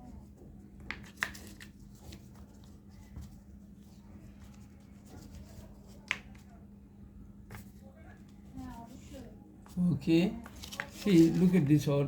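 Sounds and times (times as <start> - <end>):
paper rustling: 0.8 - 6.6, 10.4 - 11.9.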